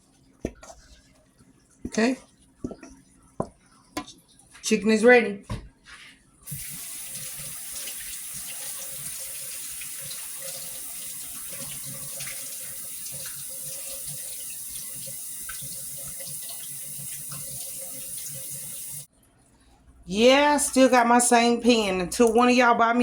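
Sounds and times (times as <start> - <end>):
tap water running into sink: 6.5 - 19.1.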